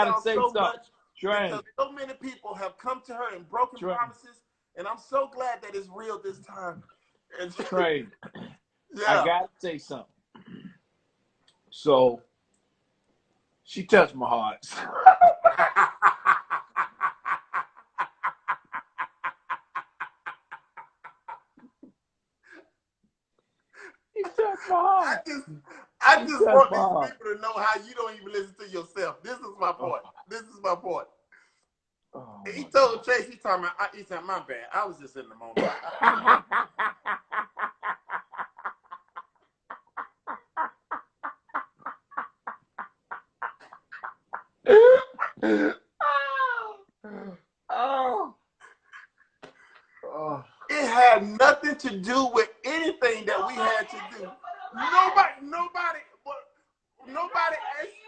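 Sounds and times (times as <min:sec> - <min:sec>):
breathy laughter: 0:14.7 - 0:21.8, 0:35.6 - 0:45.8.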